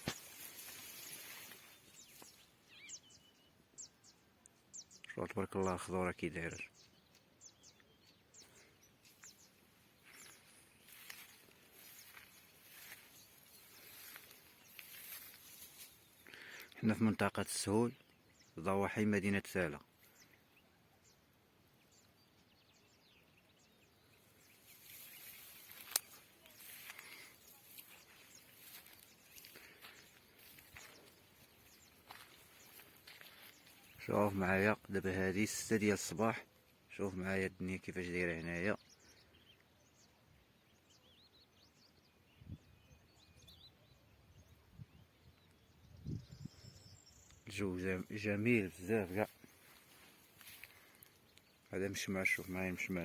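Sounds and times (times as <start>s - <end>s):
distant bird chirps: 0.0s - 19.2s, 19.8s - 37.7s.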